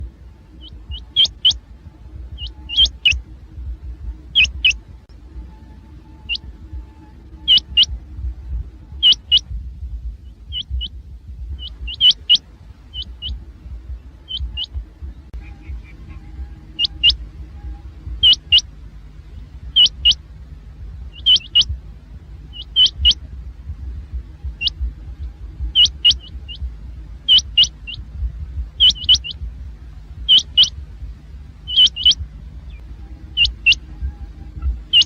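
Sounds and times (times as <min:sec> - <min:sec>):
steady low rumble: 0:00.0 - 0:35.0
quail calling: 0:00.5 - 0:01.7, 0:02.4 - 0:03.3, 0:04.3 - 0:04.8, 0:06.2 - 0:06.5, 0:07.4 - 0:08.0, 0:09.0 - 0:09.5, 0:10.3 - 0:10.9, 0:11.5 - 0:13.4, 0:14.2 - 0:18.7, 0:19.7 - 0:20.2, 0:21.1 - 0:21.8, 0:22.5 - 0:23.3, 0:24.4 - 0:28.1, 0:28.8 - 0:29.4, 0:30.2 - 0:30.8, 0:31.6 - 0:35.0.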